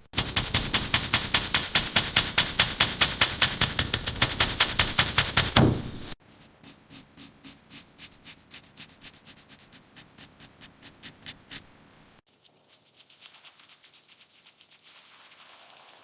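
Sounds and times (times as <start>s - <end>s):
hand sanding scraping strokes: 0.0s - 11.7s.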